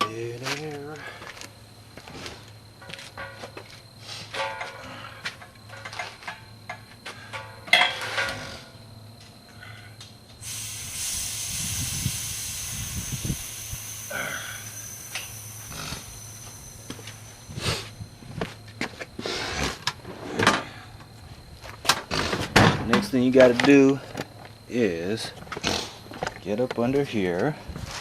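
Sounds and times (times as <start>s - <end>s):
compressed air hissing: 10.4s - 18.2s.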